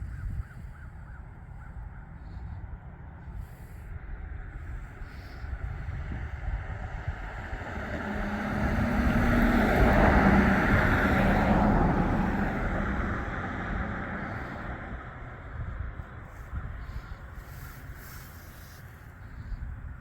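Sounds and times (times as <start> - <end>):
vehicle driving past: 5.8 - 19.5.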